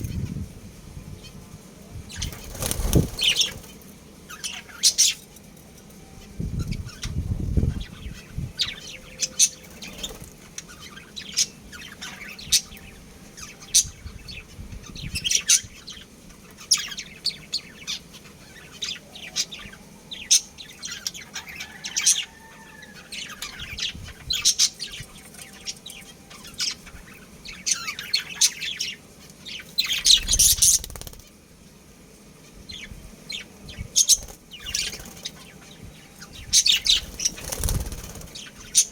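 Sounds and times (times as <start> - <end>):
budgerigars chirping: 2.1 - 3.7, 32.7 - 38.9.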